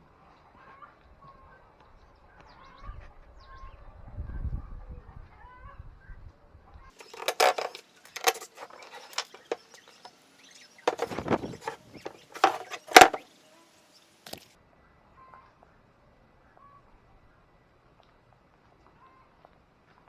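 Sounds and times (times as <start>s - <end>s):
wooden knocks and clattering: 7.0s - 10.1s, 10.9s - 13.2s.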